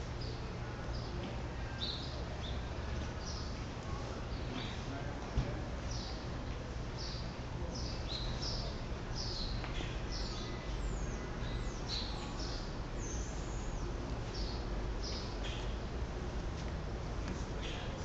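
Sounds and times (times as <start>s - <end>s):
birds chirping: 7.0s - 15.8s, 17.5s - 18.0s.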